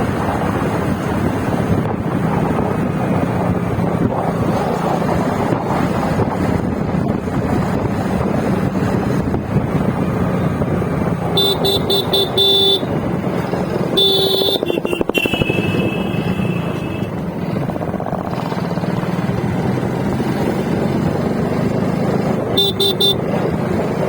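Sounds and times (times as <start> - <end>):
vehicle engine running: 6.6 - 24.0
vehicle horns honking: 11.3 - 13.1, 13.8 - 17.2, 22.5 - 23.3.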